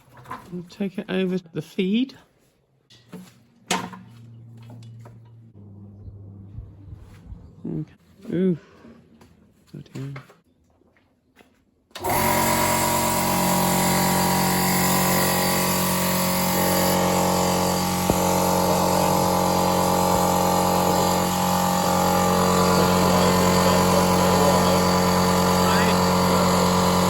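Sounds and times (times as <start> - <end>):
electric air compressor running: 12.0 - 27.0.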